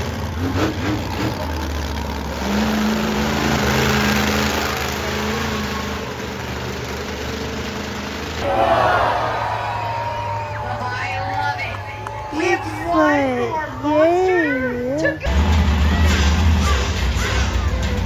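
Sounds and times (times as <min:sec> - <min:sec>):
truck engine running: 0:00.0 - 0:14.2.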